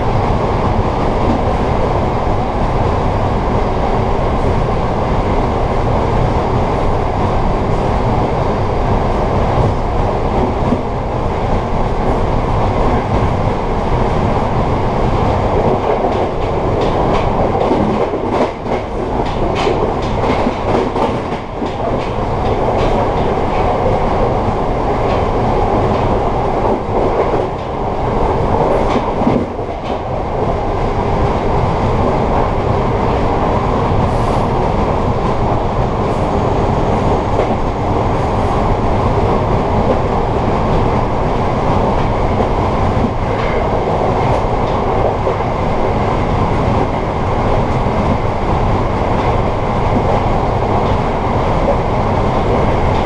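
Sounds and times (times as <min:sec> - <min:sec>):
train wheels rumbling on rails: 0:00.0 - 0:53.0
track clicks and knocks: 0:15.5 - 0:24.4.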